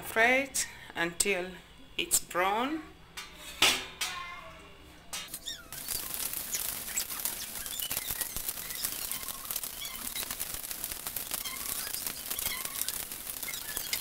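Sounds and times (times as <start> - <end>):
high squeaks: 5.3 - 14.0
gizzards sizzling in a frying pan: 5.5 - 14.0.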